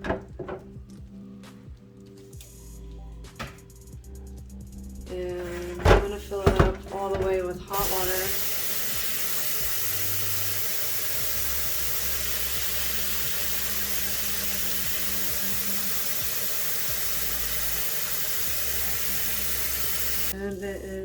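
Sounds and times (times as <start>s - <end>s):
tap water filling a tank: 6.4s - 20.4s.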